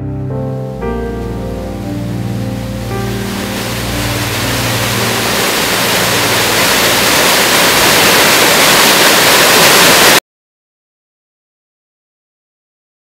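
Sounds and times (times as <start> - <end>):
waterfall rushing water: 0.8 - 10.2.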